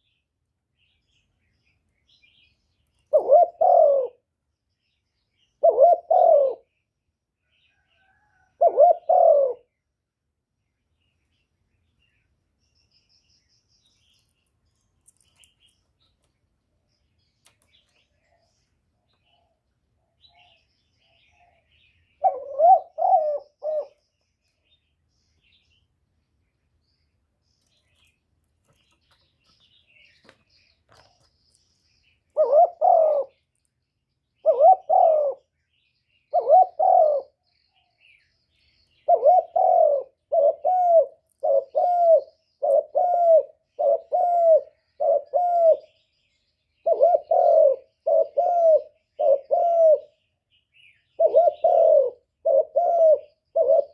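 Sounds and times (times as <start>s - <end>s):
faint high bird chirps: 0.0s - 9.9s, 10.6s - 53.9s
dove cooing: 3.1s - 4.3s, 5.6s - 6.7s, 7.8s - 9.7s, 20.2s - 24.1s, 32.3s - 33.4s, 34.4s - 35.5s, 36.3s - 37.4s, 39.0s - 46.0s, 46.8s - 50.2s, 51.1s - 53.9s.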